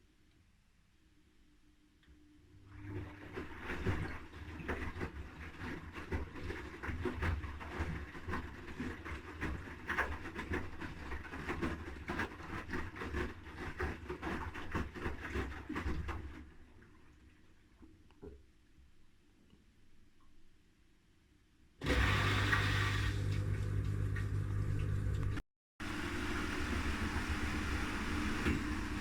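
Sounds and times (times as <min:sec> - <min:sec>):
washing machine motor rumble: 0:02.8 - 0:15.4, 0:21.8 - 0:29.0
washing machine drum tumbling laundry: 0:02.8 - 0:16.5, 0:21.8 - 0:29.0.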